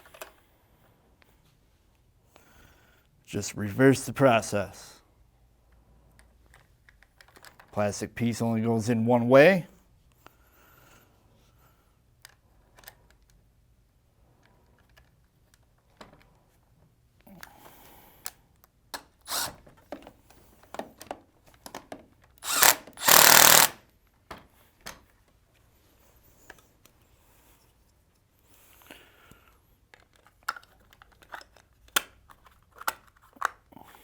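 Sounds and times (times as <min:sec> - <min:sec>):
plastic and metal parts clicking: 0:06.2 - 0:07.7, 0:29.9 - 0:33.7
power drill-driver running: 0:19.3 - 0:19.5, 0:22.4 - 0:23.8.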